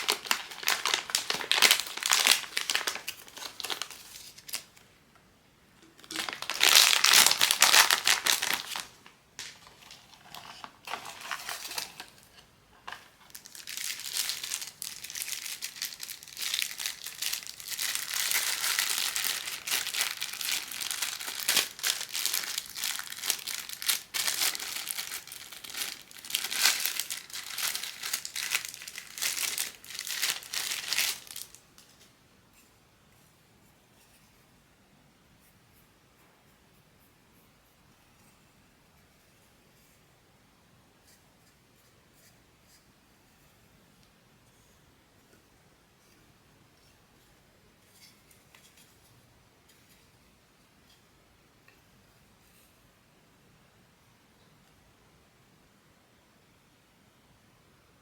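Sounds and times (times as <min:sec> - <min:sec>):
plastic wrapping crinkling: 0:00.0 - 0:04.8, 0:05.8 - 0:32.0.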